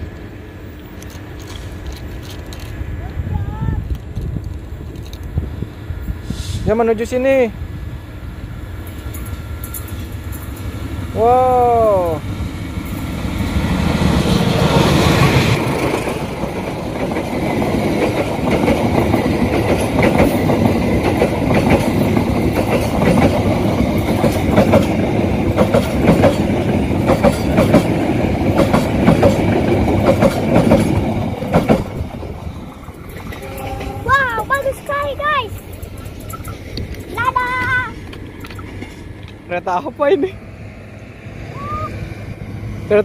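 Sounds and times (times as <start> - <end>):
diesel locomotive passing: 0.0 - 43.0
clickety-clack wheel clicks: 17.9 - 32.0.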